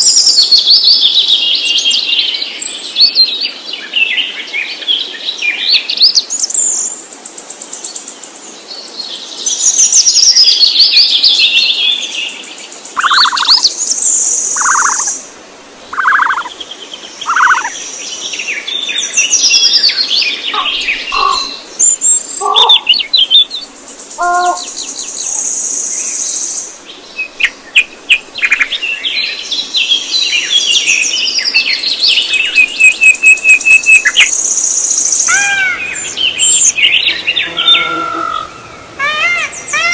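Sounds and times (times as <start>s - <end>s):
songbirds singing: 0.0s - 39.9s
lower whistled bird notes: 13.0s - 15.2s, 15.9s - 16.6s, 17.2s - 17.8s, 27.2s - 39.9s.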